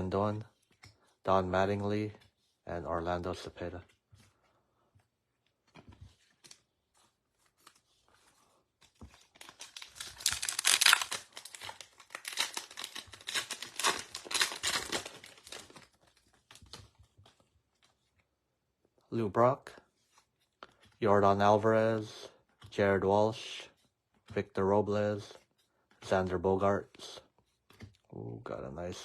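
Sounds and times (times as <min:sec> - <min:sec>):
wrapper tearing and crinkling: 0:09.2 - 0:16.0.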